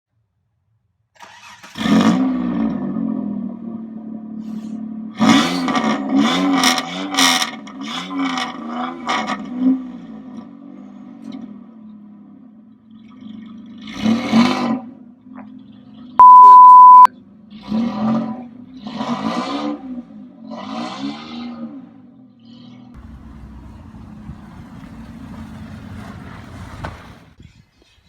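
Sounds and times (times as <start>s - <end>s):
car engine starting: 1.2s - 4.2s, 23.0s - 27.4s
car engine revving and idling: 17.2s - 27.3s.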